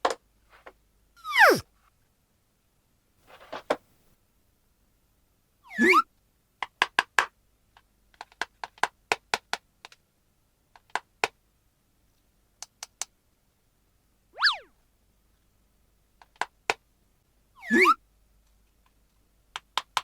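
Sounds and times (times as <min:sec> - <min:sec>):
warbling squeak: 0:01.2 - 0:01.6, 0:14.4 - 0:14.7
swooping sound effect: 0:14.4 - 0:14.7.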